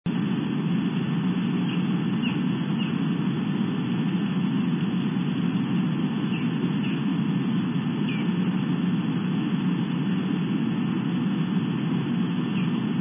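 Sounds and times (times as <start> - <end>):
steady low noise hum: 0.1 - 13.0
faint high bird calls: 1.5 - 3.1, 6.2 - 7.1, 8.0 - 8.6, 12.3 - 13.0.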